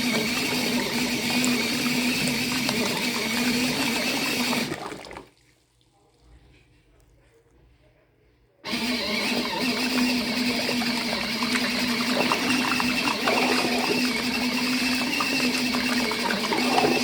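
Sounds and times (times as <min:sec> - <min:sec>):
washing machine motor humming: 0:00.0 - 0:05.3, 0:08.6 - 0:17.0.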